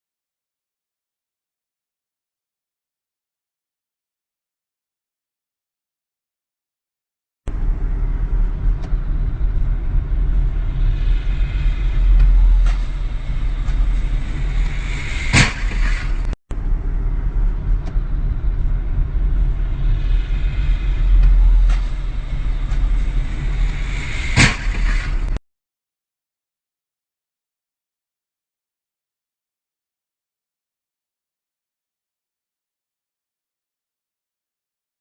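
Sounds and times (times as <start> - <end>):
vehicle rumble on road: 7.5 - 25.4
sharp collision bang: 12.2 - 16.4, 21.1 - 25.4
rising hiss: 19.6 - 25.4.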